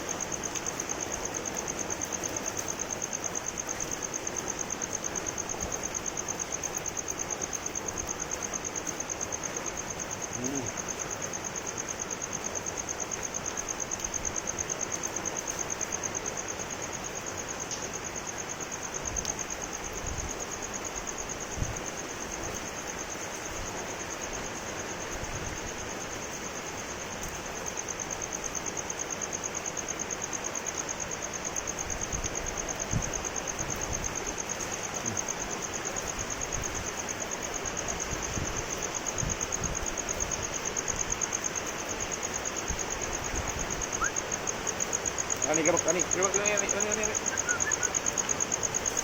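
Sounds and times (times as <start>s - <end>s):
steady rain falling: 0.0s - 49.0s
insect trilling: 10.2s - 11.1s, 34.9s - 35.5s, 42.8s - 49.0s.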